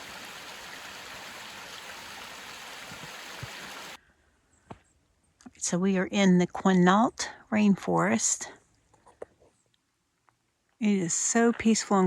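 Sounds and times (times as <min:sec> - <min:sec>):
flowing water rushing: 0:00.0 - 0:04.0.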